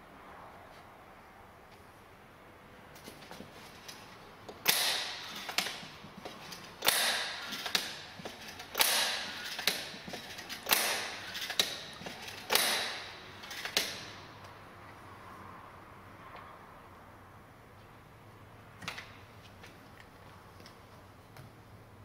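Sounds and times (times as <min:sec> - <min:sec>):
spring-loaded hammer strikes: 0:04.6 - 0:14.2.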